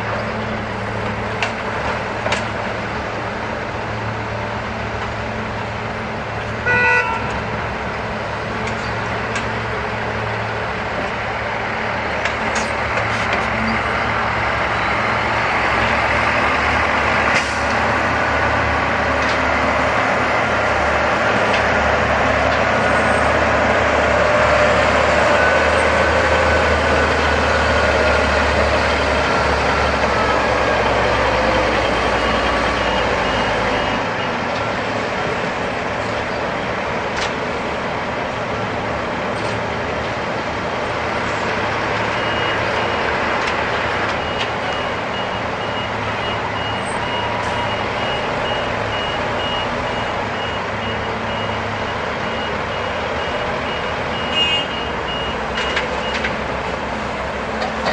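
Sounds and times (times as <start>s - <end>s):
short horn toot: 6.6s - 7.4s.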